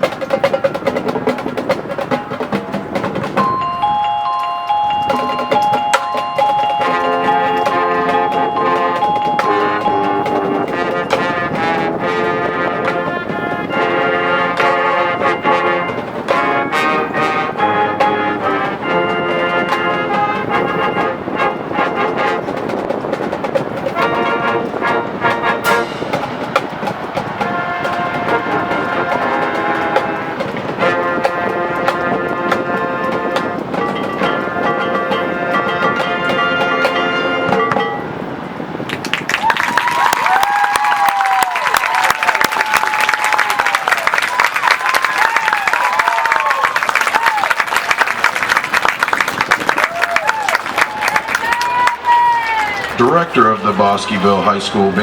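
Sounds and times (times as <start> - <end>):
drum and percussion hits: 0.0 - 17.3, 22.0 - 38.1
brass chords: 0.0 - 38.6
marching band playing: 0.0 - 55.0.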